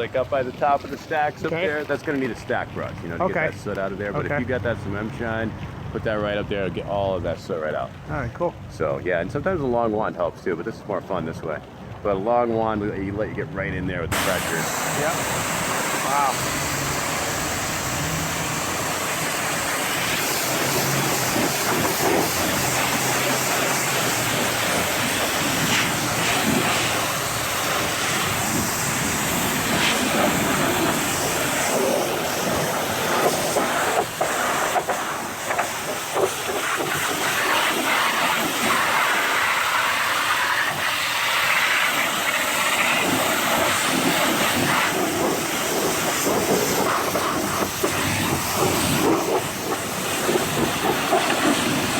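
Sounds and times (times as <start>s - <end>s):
pressure washer spraying water: 14.1s - 51.9s.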